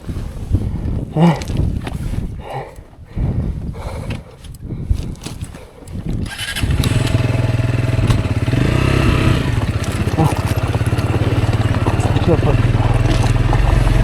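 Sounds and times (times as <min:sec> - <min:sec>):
motorcycle engine running: 0:06.2 - 0:14.0.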